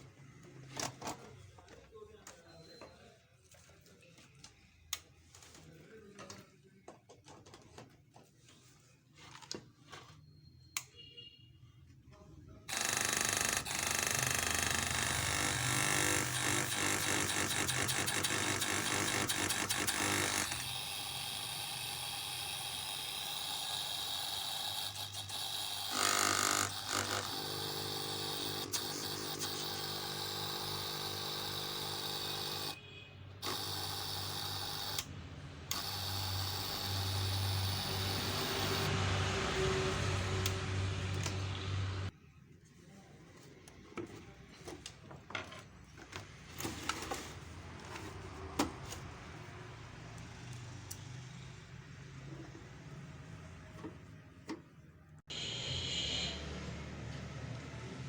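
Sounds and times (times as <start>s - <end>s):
air compressor running: 12.7s - 32.8s, 33.4s - 42.1s, 55.3s - 56.6s.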